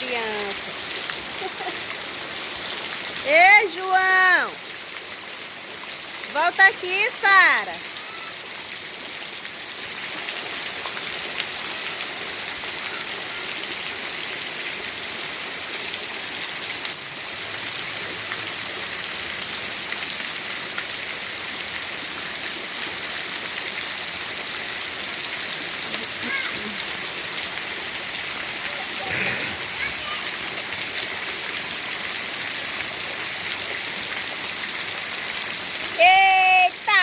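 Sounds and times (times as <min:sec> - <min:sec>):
rain falling on street: 0:00.0 - 0:37.0.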